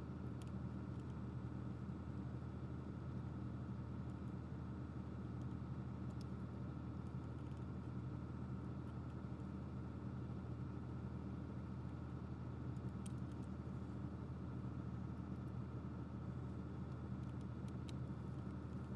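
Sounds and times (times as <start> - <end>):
faint light clicks: 0.4 - 1.2, 5.4 - 6.4, 12.7 - 13.6, 16.9 - 18.9.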